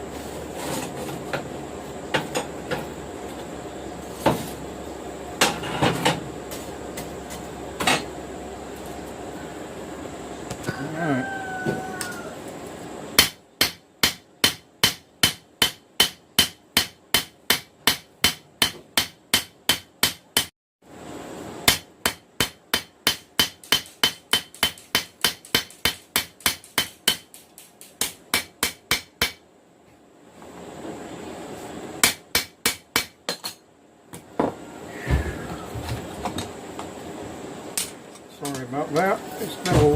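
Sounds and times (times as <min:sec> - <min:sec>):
hammer striking metal on anvil: 0:13.2 - 0:20.5, 0:21.6 - 0:27.4, 0:28.0 - 0:29.4, 0:32.0 - 0:33.6.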